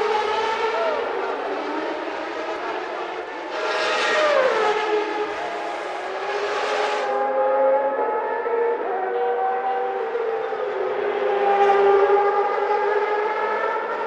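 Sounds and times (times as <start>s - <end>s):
racing car engines revving high: 0.0s - 14.0s.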